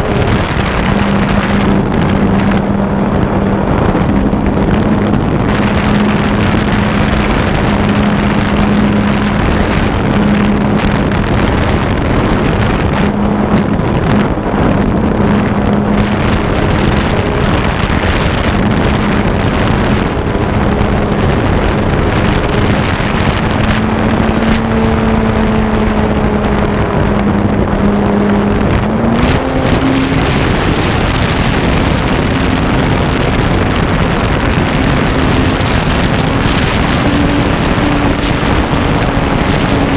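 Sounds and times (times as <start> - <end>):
wind rushing: 0.0 - 39.9.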